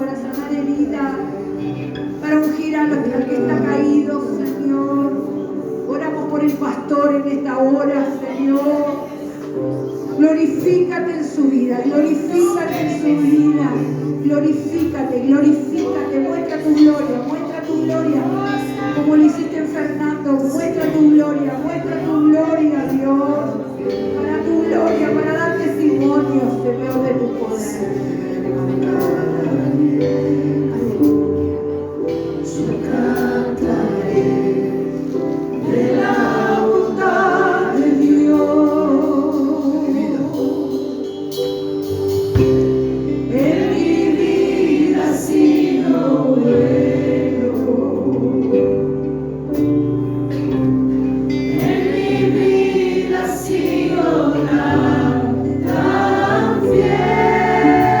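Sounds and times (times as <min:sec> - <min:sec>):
sustained keyboard chords: 0:00.0 - 0:58.0
voices singing together: 0:27.4 - 0:31.6, 0:32.4 - 0:40.3, 0:43.2 - 0:48.8, 0:51.4 - 0:58.0.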